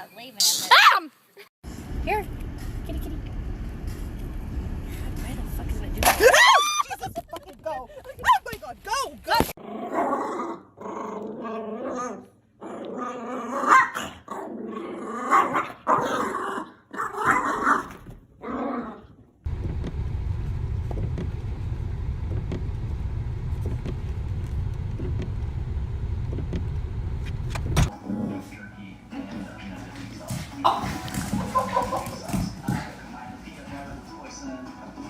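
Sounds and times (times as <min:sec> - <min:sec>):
steady low rumble: 0:01.7 - 0:06.2, 0:19.5 - 0:27.9
dog growling and barking: 0:09.6 - 0:19.2.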